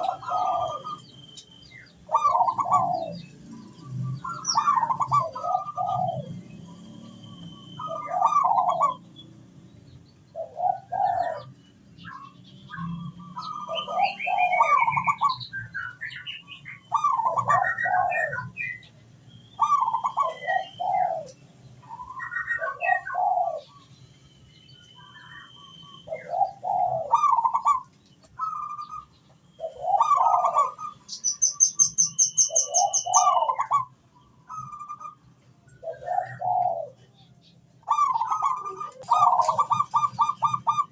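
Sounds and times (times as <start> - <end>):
dove cooing: 0.0 - 1.2, 2.0 - 9.1, 10.3 - 16.2, 16.9 - 18.8, 19.6 - 23.8, 25.3 - 33.9, 35.8 - 37.2, 37.8 - 40.9
small birds chirping faintly: 0.0 - 40.9
fast high bird trill: 28.4 - 33.9.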